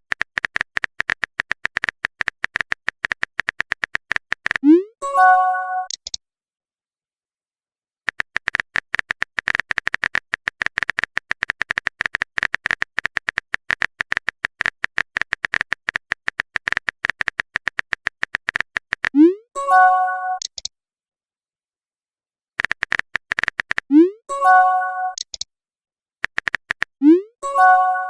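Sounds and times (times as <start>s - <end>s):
phone keyboard typing clicks: 0.1s - 4.7s, 5.8s - 6.2s, 8.1s - 19.2s, 20.3s - 20.7s, 22.6s - 24.0s, 25.1s - 25.5s, 26.2s - 27.0s.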